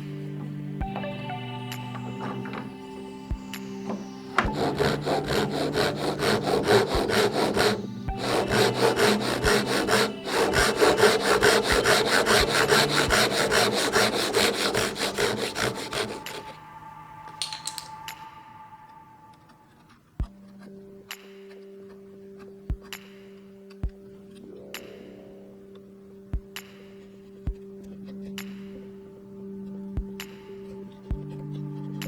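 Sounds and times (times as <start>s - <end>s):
soft background music: 0.0s - 32.0s
hand saw cutting wood: 1.8s - 3.0s, 3.8s - 16.6s.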